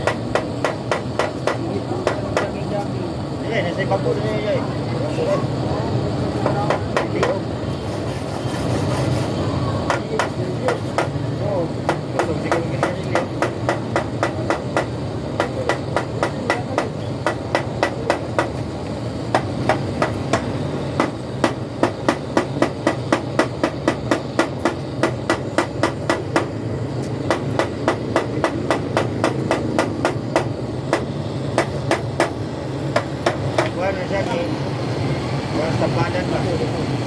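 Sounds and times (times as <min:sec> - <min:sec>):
hammer tapping on metal tank: 0:00.0 - 0:02.6, 0:06.4 - 0:07.4, 0:09.8 - 0:18.7, 0:19.3 - 0:26.6, 0:27.2 - 0:33.8.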